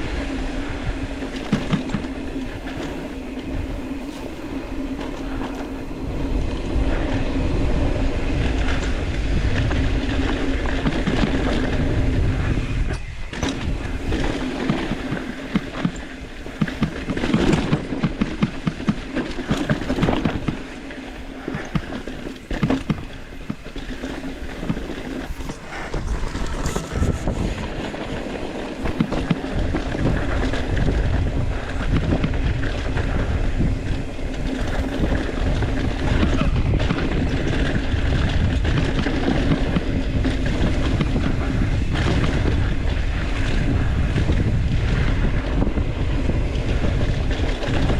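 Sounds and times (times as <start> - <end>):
bike rattling over bumps: 0.0 - 47.9
bike tyre noise: 0.0 - 47.9
wind buffeting microphone: 0.0 - 47.9
steady low hum: 20.7 - 30.4.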